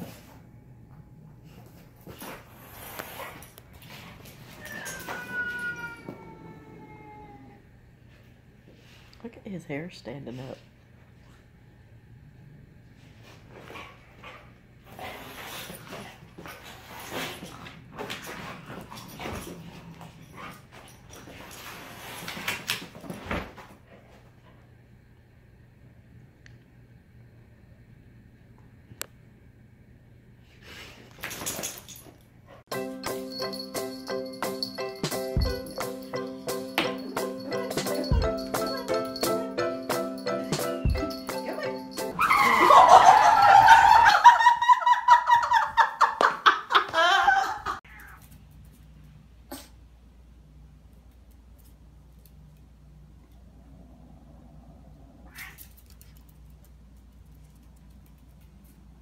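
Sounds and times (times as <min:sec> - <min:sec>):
dog whining: 0:04.5 - 0:07.7, 0:40.8 - 0:43.2
scuffling: 0:36.8 - 0:39.4, 0:40.4 - 0:42.7
person laughing hard: 0:41.4 - 0:47.8.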